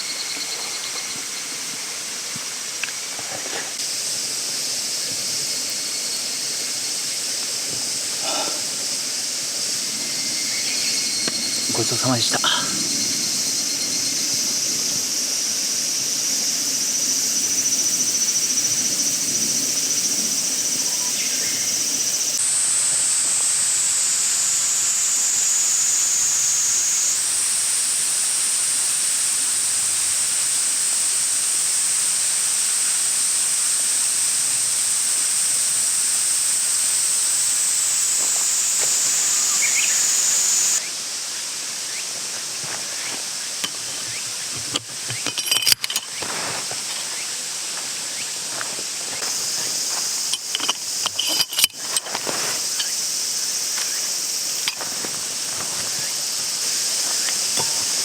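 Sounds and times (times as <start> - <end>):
insects singing chorus: 0.0 - 58.0
outdoor hiss: 0.0 - 58.0.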